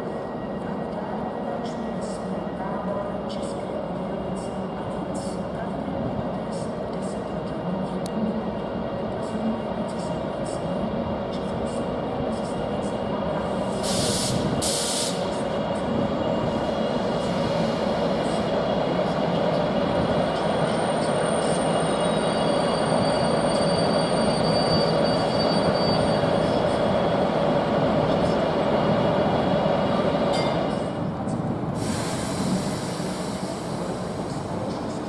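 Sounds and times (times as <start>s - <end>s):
wheel squeal: 21.4s - 26.4s
train rumble: 23.0s - 35.0s.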